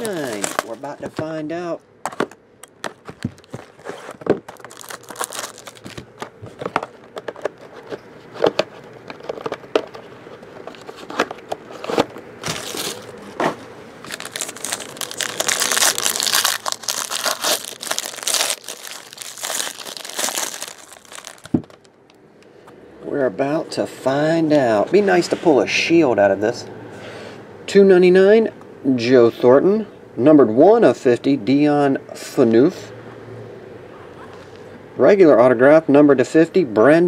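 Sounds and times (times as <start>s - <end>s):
plastic wrapping crinkling and tearing: 0.0s - 1.2s, 2.7s - 6.6s, 11.8s - 13.1s, 14.0s - 21.9s.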